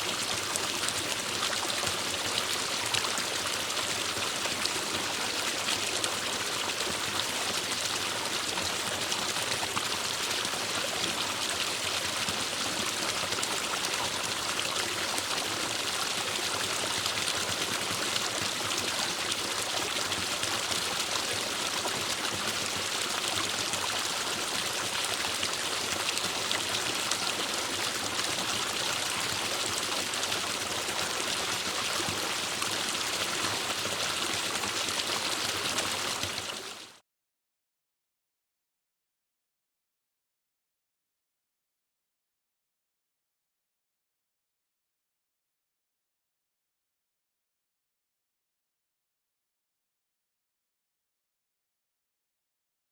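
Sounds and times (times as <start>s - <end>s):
stream running over rocks: 0.0s - 37.0s.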